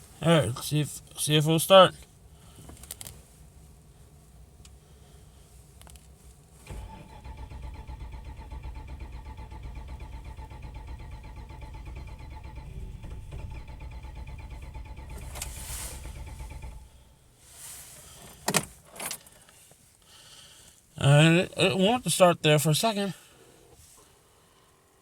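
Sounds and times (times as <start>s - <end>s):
car engine cranking on starter: 6.6s - 17.4s.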